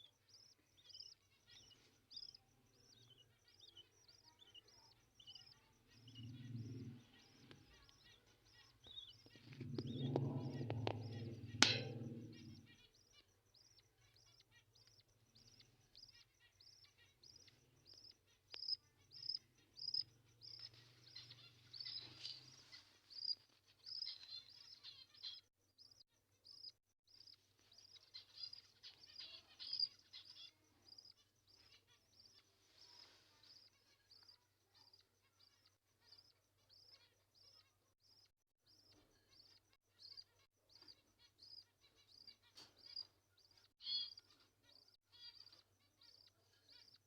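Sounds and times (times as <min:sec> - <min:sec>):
baby bird peeping: 0:00.0 - 0:47.0
handling noise rumble: 0:09.3 - 0:12.8
sharp knock: 0:09.6 - 0:12.7.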